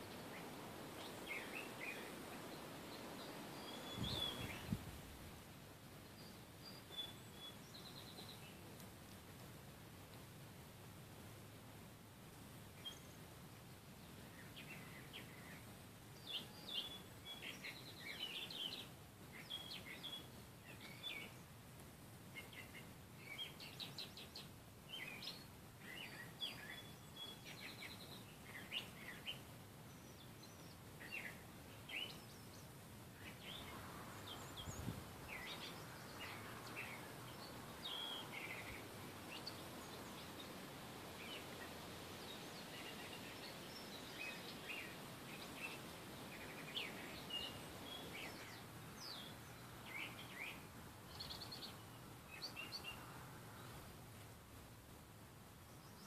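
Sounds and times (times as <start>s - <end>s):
small birds chirping: 0.0s - 5.0s, 6.0s - 9.2s, 12.6s - 56.0s
faint steady hiss: 0.0s - 56.0s.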